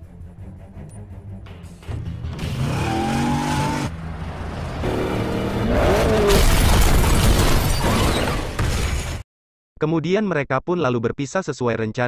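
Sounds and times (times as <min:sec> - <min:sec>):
car engine revving hard: 0:02.4 - 0:06.4.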